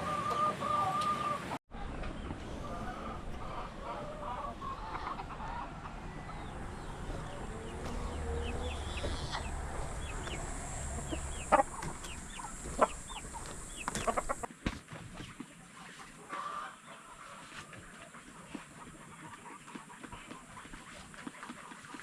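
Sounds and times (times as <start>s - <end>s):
poultry chirping: 0.0s - 14.5s
poultry clucking: 0.0s - 22.0s
low hum: 1.8s - 14.4s.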